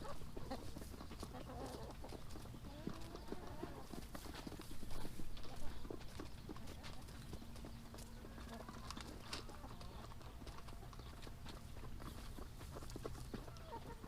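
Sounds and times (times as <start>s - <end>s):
chickens pecking grain: 0.0s - 14.0s.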